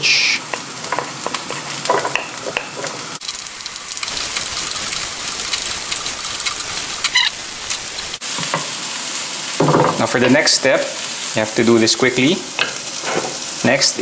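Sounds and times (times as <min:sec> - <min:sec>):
sausage sizzling in oil: 0:00.0 - 0:14.0
wooden spatula scraping pan: 0:00.9 - 0:03.0.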